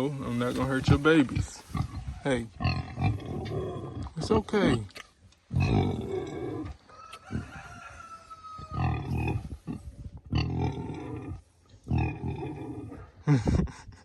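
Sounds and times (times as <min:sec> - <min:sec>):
sow grunting: 0:00.0 - 0:04.9, 0:05.5 - 0:06.8, 0:08.6 - 0:13.2
rooster crowing: 0:06.7 - 0:09.2.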